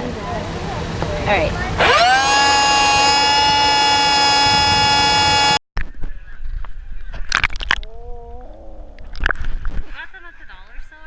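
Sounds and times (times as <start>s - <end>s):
air horn honk: 1.8s - 5.6s.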